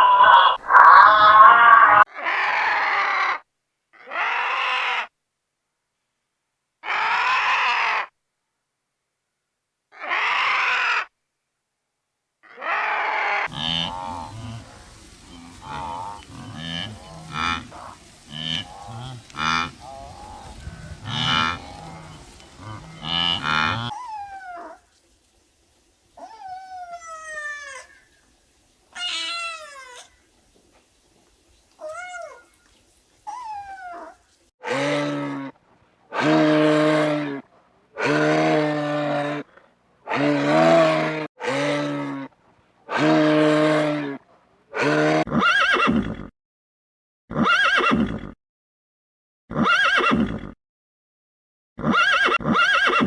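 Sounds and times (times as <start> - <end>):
deep farm animal calls: 0.0 - 3.3, 12.5 - 46.3
overlapping farm animal calls: 0.0 - 3.3, 12.5 - 35.5, 38.0 - 39.4, 40.1 - 42.2
kitten meowing: 26.2 - 28.0, 29.0 - 30.2, 31.8 - 32.6, 33.3 - 34.2.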